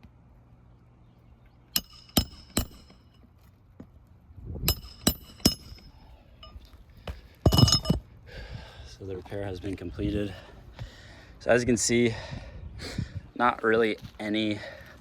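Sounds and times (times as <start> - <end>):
hammer striking roofing nails: 1.8 - 3.0, 4.7 - 5.9.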